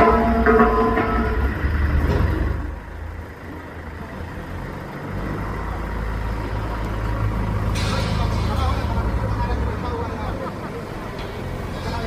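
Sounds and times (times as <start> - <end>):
low machine rumble: 0.0 - 5.0.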